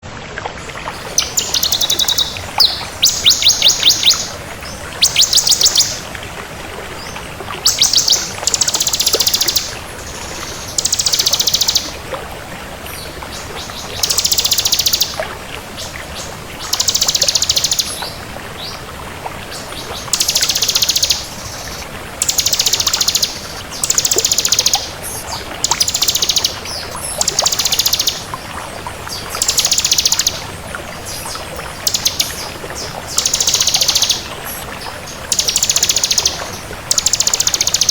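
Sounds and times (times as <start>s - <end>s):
steady background hiss: 0.7s - 37.9s
bird singing rapid trills: 1.0s - 6.1s, 7.6s - 11.9s, 13.6s - 15.2s, 16.6s - 18.1s, 20.1s - 28.3s, 29.4s - 30.5s, 31.7s - 34.6s, 35.2s - 37.9s.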